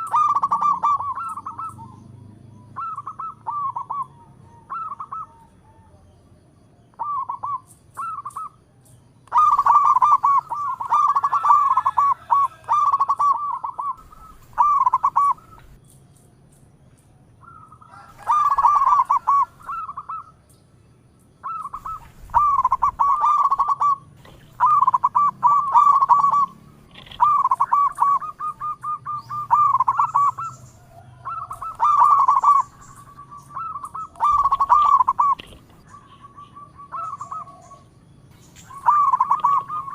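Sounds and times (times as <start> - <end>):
dove cooing: 0.0 - 6.2, 6.8 - 8.6, 9.3 - 15.8, 17.4 - 20.4, 21.4 - 39.9.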